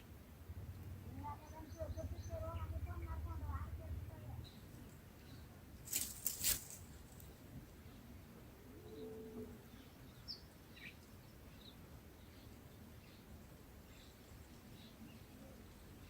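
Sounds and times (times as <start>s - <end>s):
wings flapping: 5.9s - 7.3s
soft bird cooing: 8.6s - 9.9s.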